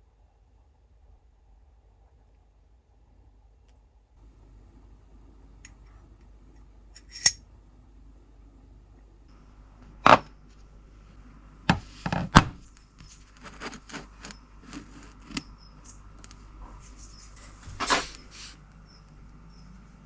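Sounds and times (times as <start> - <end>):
hard objects knocking and clinking: 7.0 - 7.4.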